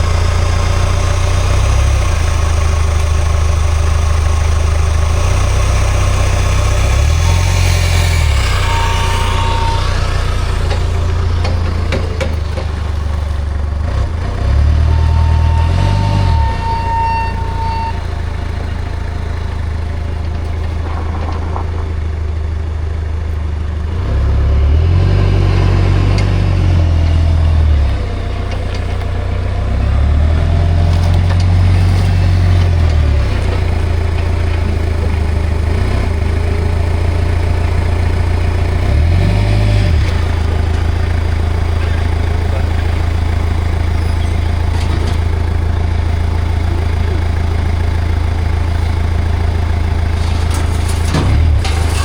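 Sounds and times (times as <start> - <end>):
forklift engine idling: 0.0 - 52.0.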